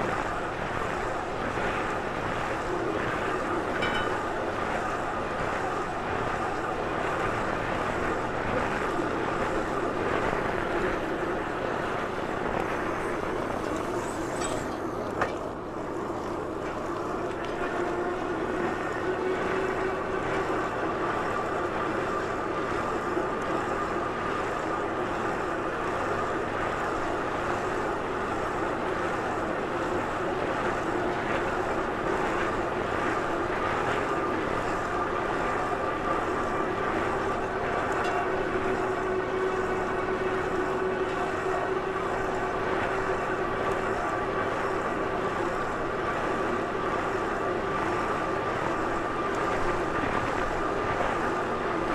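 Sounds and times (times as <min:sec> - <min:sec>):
faint wavering hum: 0:03.4 - 0:04.6.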